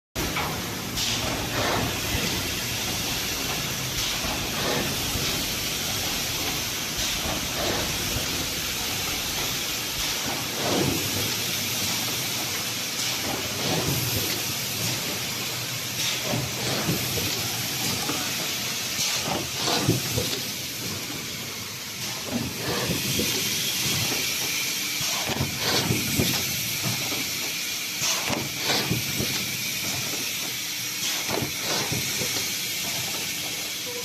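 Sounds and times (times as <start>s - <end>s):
machine knocking strokes: 0.2s - 34.0s
air hissing: 0.6s - 34.0s.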